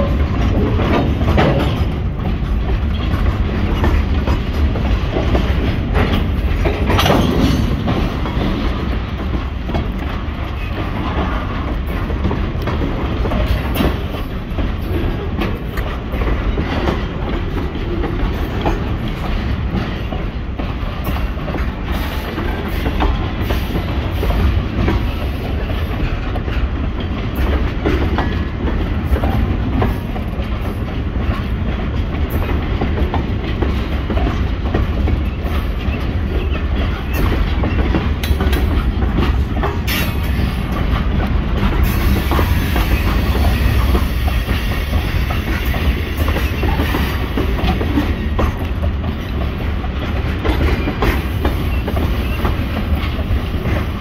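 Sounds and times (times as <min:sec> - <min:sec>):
freight train rumbling past: 0:00.0 - 0:54.0
wheels clacking on rails: 0:00.0 - 0:54.0.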